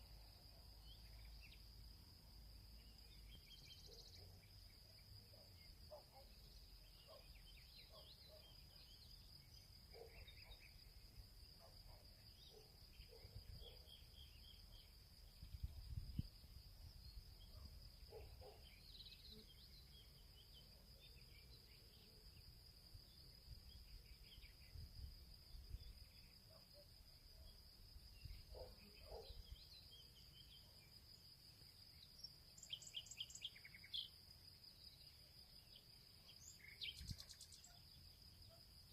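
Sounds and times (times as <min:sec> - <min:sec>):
insects trilling: 0:00.0 - 0:38.9
bird chirps and calls: 0:32.6 - 0:34.2, 0:36.4 - 0:37.8.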